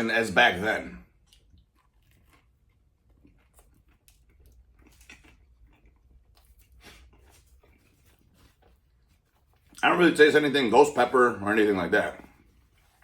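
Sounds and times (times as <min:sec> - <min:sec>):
faint chewing mouth clicks: 0:01.1 - 0:09.8.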